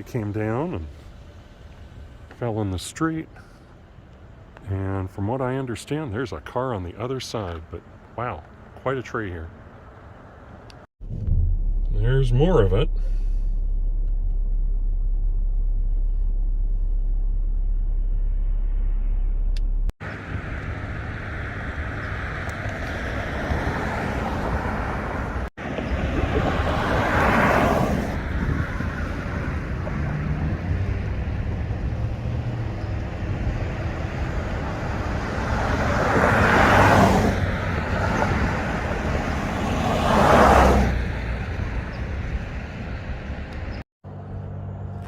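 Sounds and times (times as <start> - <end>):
background traffic noise: 0.0 - 10.9, 20.0 - 45.0
cars passing: 0.0 - 10.9, 20.0 - 45.0.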